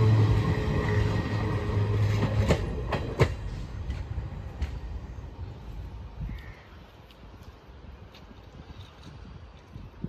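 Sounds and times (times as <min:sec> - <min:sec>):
train wheels clacking on rails: 0:00.0 - 0:05.0
train rumble: 0:00.0 - 0:10.0.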